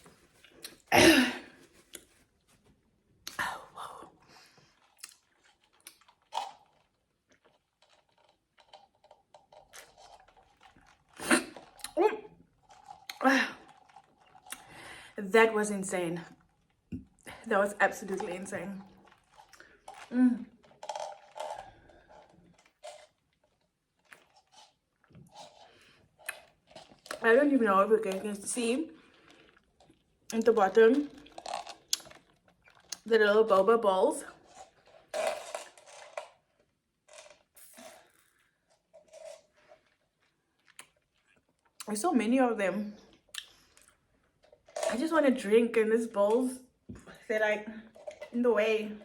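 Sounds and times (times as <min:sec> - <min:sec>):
person chewing: 0:04.6 - 0:15.0, 0:18.8 - 0:27.2, 0:29.0 - 0:30.4, 0:31.1 - 0:33.1, 0:34.3 - 0:41.9, 0:43.1 - 0:44.8.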